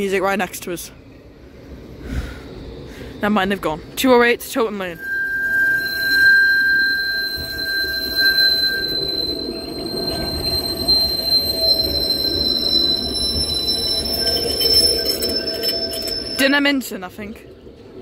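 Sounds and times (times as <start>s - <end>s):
tram rumble: 0.0s - 18.0s
high-pitched wheel squeal: 4.9s - 16.6s.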